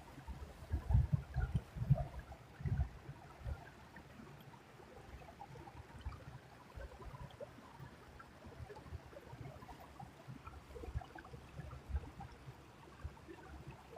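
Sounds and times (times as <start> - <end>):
faint creek water flowing: 0.0 - 13.9.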